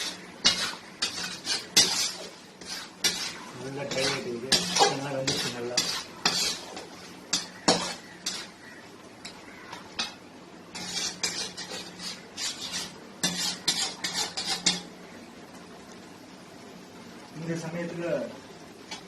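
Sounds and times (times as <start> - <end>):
spoon scraping a pan: 0.0 - 15.0.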